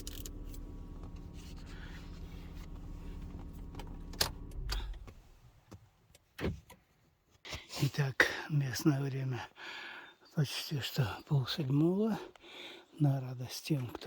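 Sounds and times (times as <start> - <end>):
car engine idling: 0.0 - 5.4.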